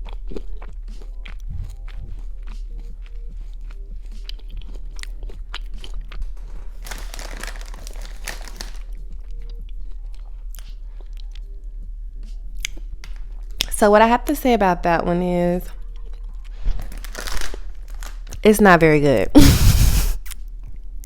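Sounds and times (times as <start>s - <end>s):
chewing gummy candies: 0.0s - 12.8s, 15.8s - 18.4s.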